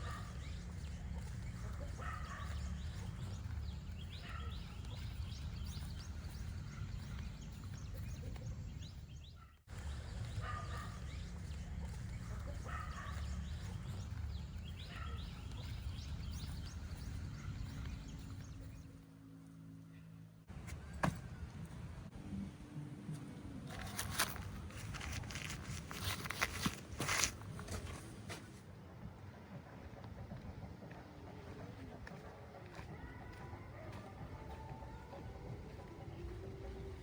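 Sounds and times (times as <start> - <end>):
bird calls: 0.0 - 19.0.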